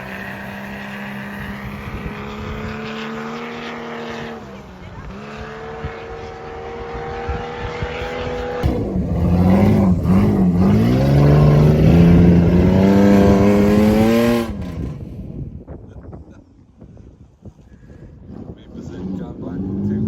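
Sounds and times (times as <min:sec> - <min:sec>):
four-wheel-drive engine revving high: 0:00.0 - 0:15.5.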